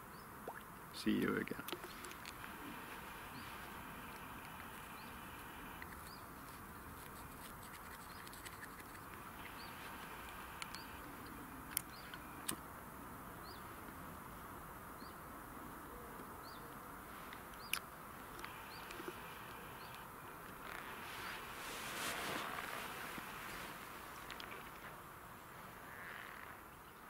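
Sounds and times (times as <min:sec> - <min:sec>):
small bird chirping: 0:01.7 - 0:12.6, 0:17.6 - 0:21.5.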